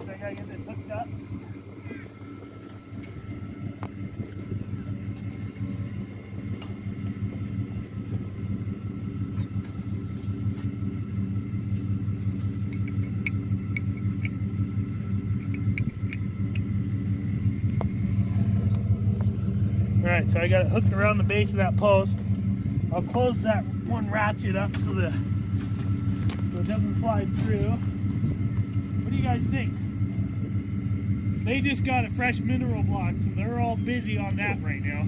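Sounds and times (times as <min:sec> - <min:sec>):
pickup truck engine idling: 0:00.0 - 0:35.0.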